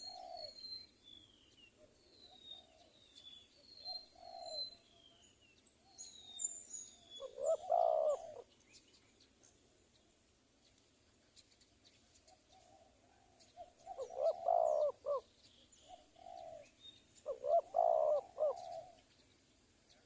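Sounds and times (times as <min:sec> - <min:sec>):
doves cooing: 0:00.0 - 0:00.6, 0:03.9 - 0:04.8, 0:07.2 - 0:08.5, 0:12.2 - 0:19.2
small birds chirping: 0:00.0 - 0:20.0.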